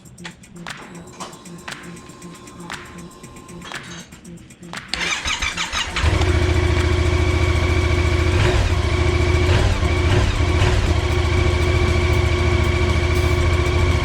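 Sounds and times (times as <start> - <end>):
motorcycle engine idling: 5.0 - 14.0.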